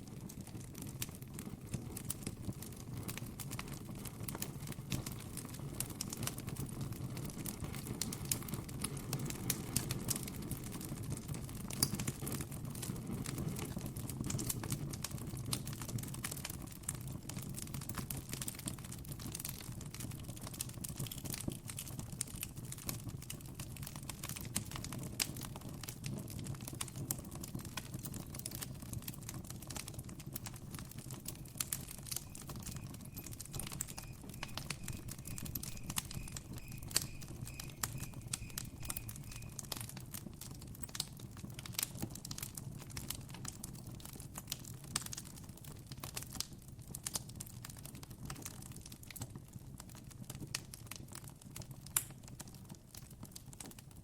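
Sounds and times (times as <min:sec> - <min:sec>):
campfire crackling and popping: 0:00.0 - 0:54.0
faint high chirp: 0:31.3 - 0:39.9.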